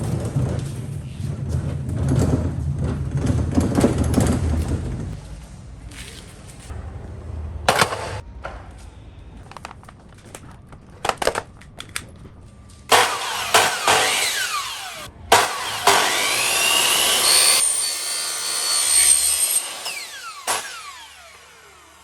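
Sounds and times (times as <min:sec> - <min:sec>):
power tool cutting: 0:12.9 - 0:22.0.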